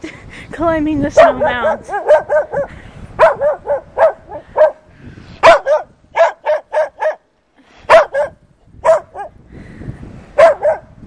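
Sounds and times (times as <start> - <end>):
dog barking: 1.2 - 4.8, 5.4 - 7.2, 7.9 - 9.4, 10.4 - 10.9.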